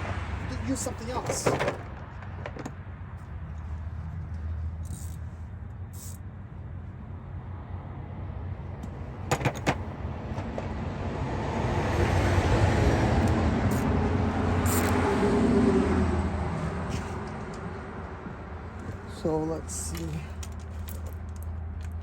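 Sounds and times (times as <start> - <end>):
motor vehicle passing by: 10.1 - 22.0.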